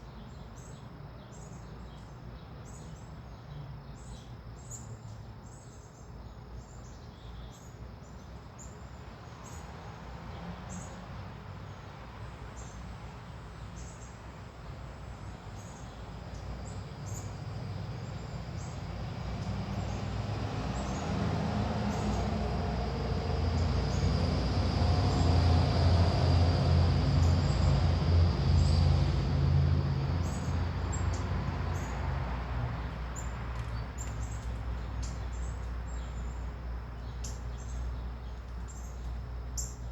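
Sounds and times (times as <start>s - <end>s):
small birds chirping: 13.5s - 25.5s, 29.9s - 39.9s
passing engine rumble: 16.0s - 39.9s.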